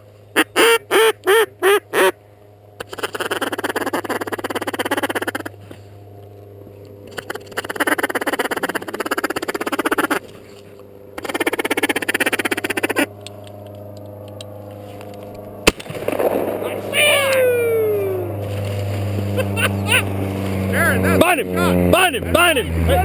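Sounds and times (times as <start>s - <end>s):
steady low hum: 0.0s - 23.0s
duck call quacks: 0.4s - 2.2s, 2.8s - 5.5s.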